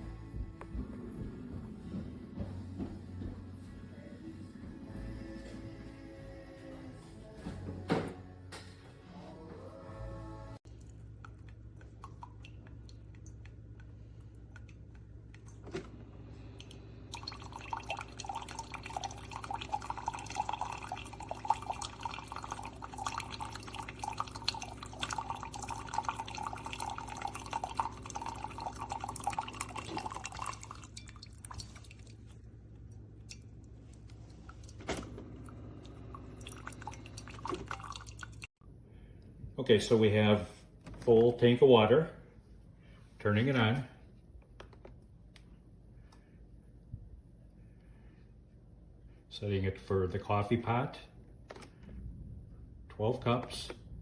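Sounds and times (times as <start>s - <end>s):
steady low hum: 8.3s - 41.1s
water pouring into reservoir: 10.7s - 15.8s, 16.4s - 38.5s.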